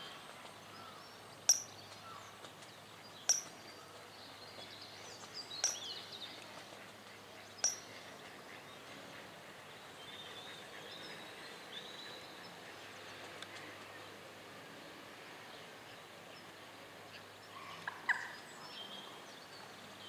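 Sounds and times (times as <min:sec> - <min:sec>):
bird chip notes: 0:03.3 - 0:03.5, 0:05.6 - 0:05.9, 0:07.6 - 0:07.9.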